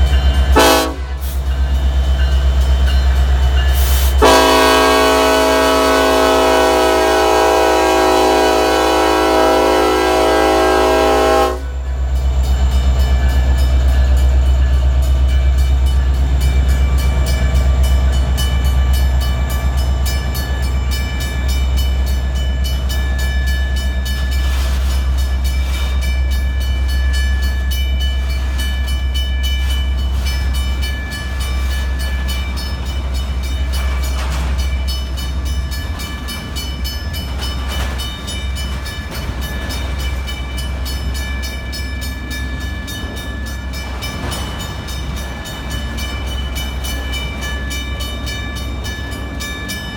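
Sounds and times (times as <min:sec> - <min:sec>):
freight train rumbling past: 0:00.0 - 0:49.9
locomotive air horn chord: 0:00.6 - 0:01.4, 0:03.8 - 0:11.8.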